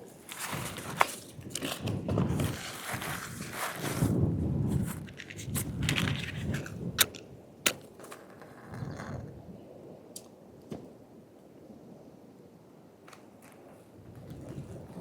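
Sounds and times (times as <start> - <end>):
handling rustling and scraping: 0.0 - 9.4.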